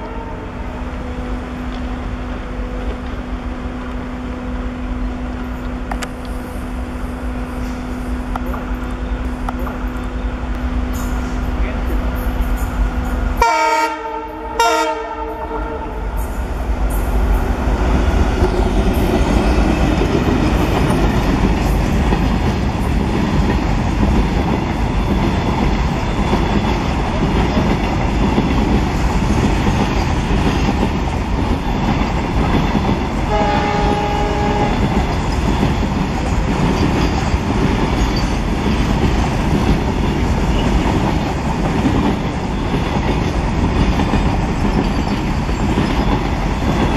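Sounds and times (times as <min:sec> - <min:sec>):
locomotive horn blast: 0:00.0 - 0:00.7, 0:13.4 - 0:16.1, 0:33.3 - 0:34.9
train wheels rolling: 0:15.4 - 0:46.9.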